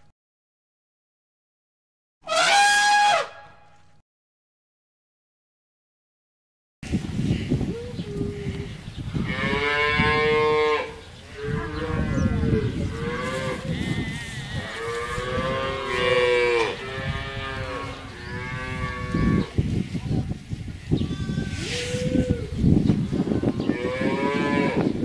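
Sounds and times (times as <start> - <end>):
cows mooing: 9.2 - 19.5, 23.6 - 24.9.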